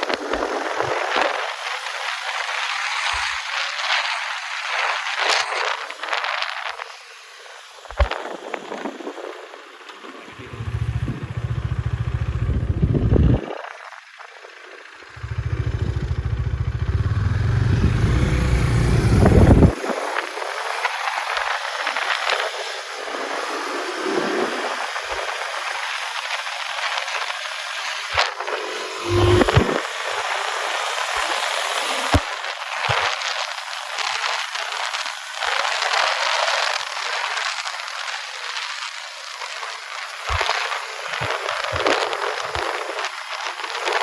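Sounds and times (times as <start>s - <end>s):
wind and road noise: 0.0s - 44.0s
motorcycle engine revving hard: 10.3s - 13.5s, 15.1s - 19.8s, 28.1s - 32.3s.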